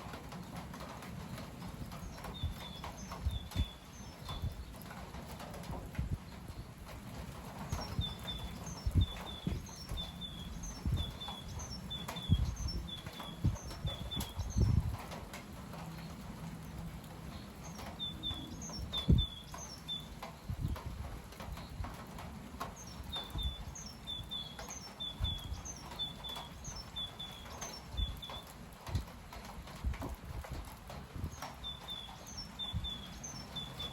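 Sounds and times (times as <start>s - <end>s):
gusty wind: 0.0s - 33.9s
wind buffeting microphone: 0.0s - 33.9s
small bird singing: 2.0s - 4.9s, 7.6s - 14.9s, 17.2s - 20.6s, 22.7s - 28.6s, 31.2s - 33.9s.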